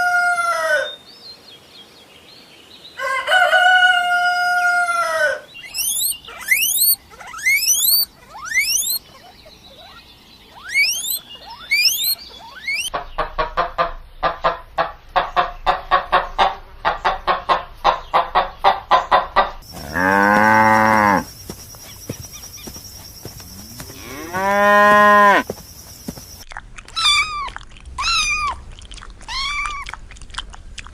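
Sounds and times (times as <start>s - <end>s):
high-pitched rising animal calls: 4.9s - 12.9s, 23.5s - 25.4s
fast pulsed animal call: 5.6s - 12.9s
cow mooing: 19.7s - 21.3s, 23.5s - 25.4s.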